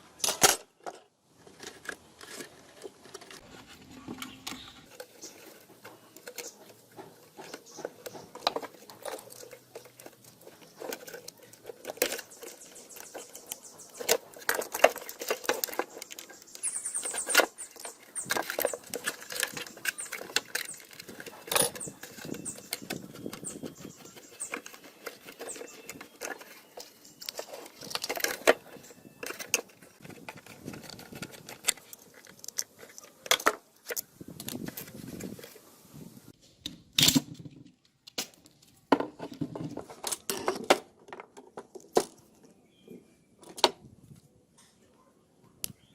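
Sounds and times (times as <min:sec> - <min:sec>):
high squeaks: 0:03.4 - 0:30.0
metal parts clicking and tapping: 0:04.1 - 0:34.9.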